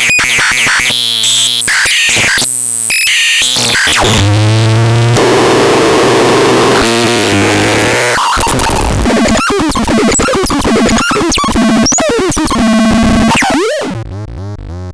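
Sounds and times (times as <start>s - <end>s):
electronic chirps and pitch sweeps: 8.6s - 14.9s
steady buzzing tone: 9.1s - 14.9s.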